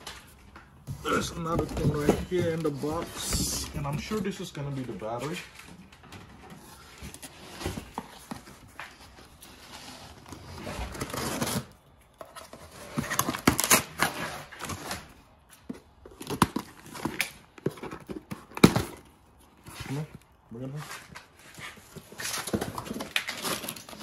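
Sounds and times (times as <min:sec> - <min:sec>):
packing material rustling and tearing: 0:06.6 - 0:15.4, 0:16.1 - 0:24.0.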